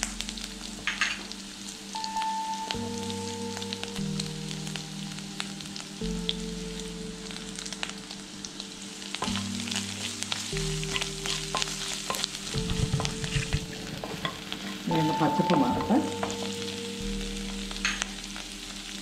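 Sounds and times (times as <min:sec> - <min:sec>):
leaves sizzling and popping in oil: 0:00.0 - 0:19.0
spoon stirring in a wok: 0:10.3 - 0:14.9.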